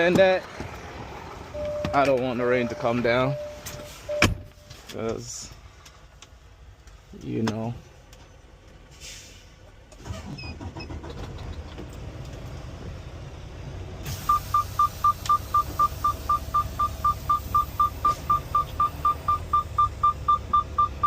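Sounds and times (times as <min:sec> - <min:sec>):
diesel truck engine idling: 0:09.5 - 0:21.0.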